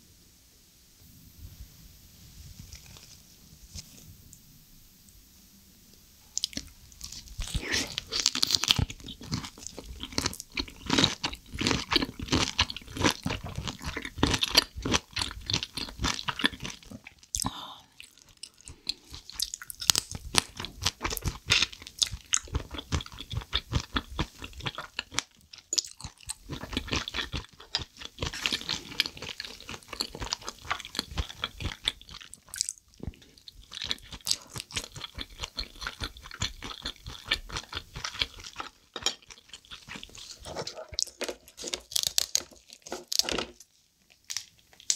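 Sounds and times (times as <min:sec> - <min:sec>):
wet chewing and mouth smacks: 0:06.4 - 0:41.1.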